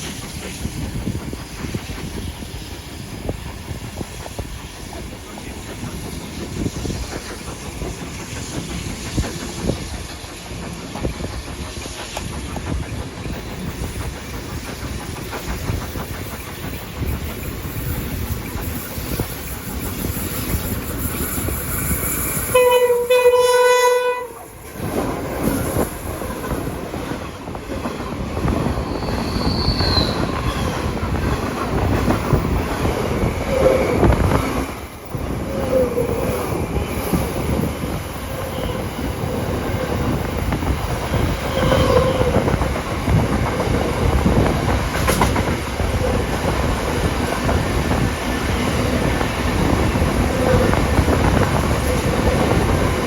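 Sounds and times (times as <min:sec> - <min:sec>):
train wheels clickety-clack: 0:00.0 - 0:53.0
steam locomotive whistle: 0:21.4 - 0:24.6, 0:28.9 - 0:30.7, 0:41.4 - 0:42.4.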